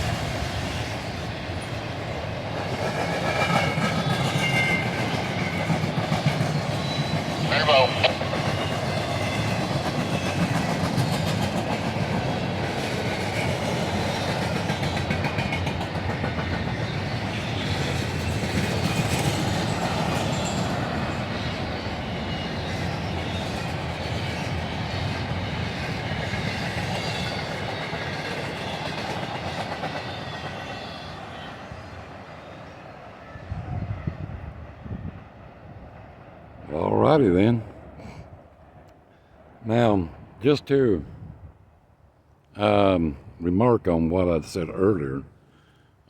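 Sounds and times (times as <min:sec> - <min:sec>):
train wheels clattering: 0:02.6 - 0:21.3, 0:22.0 - 0:31.0.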